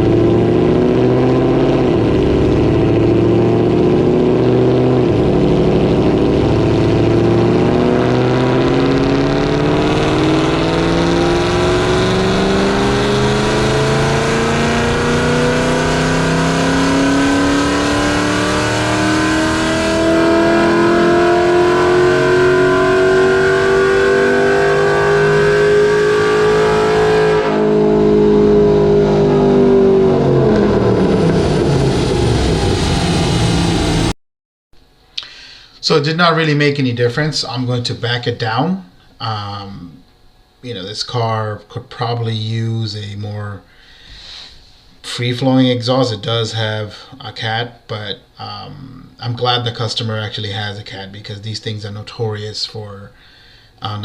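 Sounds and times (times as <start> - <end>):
engine revving at full throttle: 0.0 - 34.2.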